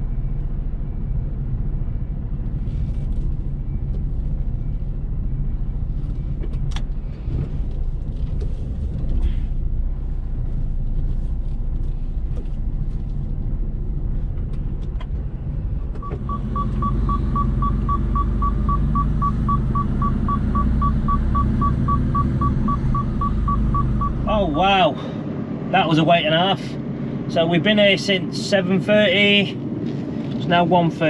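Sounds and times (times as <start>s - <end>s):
diesel engine rumble: 0.0s - 31.0s
fast electronic beeping: 16.0s - 24.3s.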